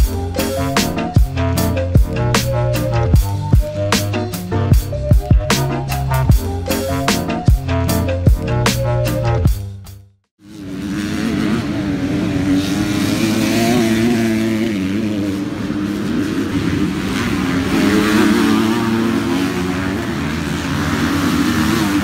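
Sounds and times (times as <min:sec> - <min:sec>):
motocross bike engine revving: 0:10.4 - 0:22.0.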